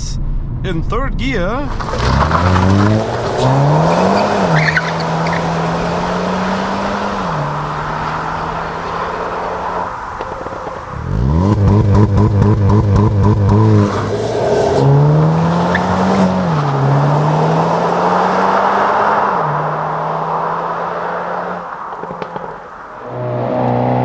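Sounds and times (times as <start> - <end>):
car engine revving and accelerating: 1.7 - 24.0.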